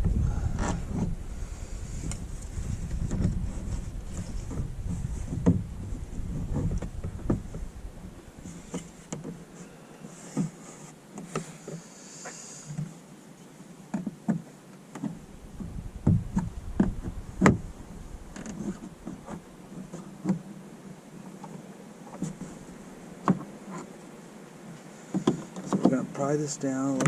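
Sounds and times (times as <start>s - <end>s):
brief rubbing hiss: 10.1s - 12.9s.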